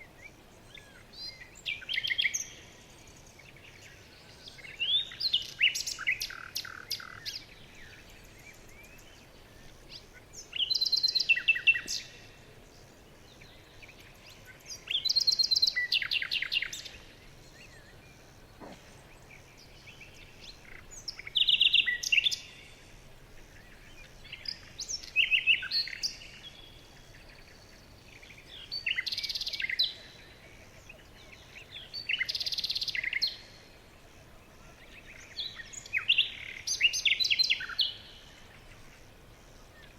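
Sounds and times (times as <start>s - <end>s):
faint background hiss: 0.0s - 39.9s
songbird trilling: 4.4s - 12.3s, 13.4s - 22.6s.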